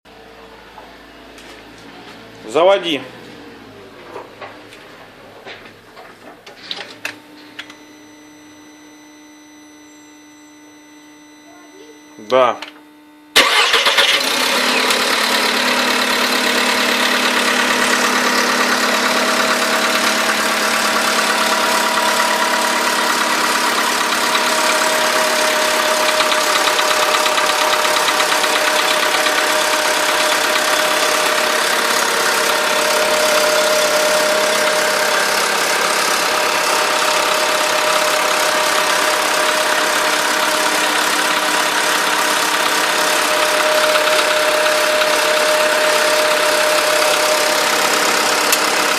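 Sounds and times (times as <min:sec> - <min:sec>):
car engine idling: 0:13.4 - 0:48.9.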